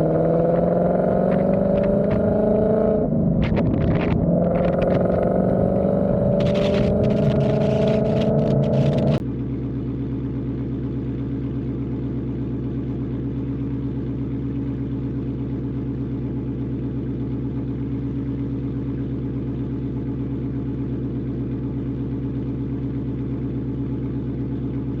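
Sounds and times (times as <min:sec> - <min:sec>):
loud bright engine sound: 0:00.0 - 0:13.8
car engine idling: 0:00.0 - 0:25.0.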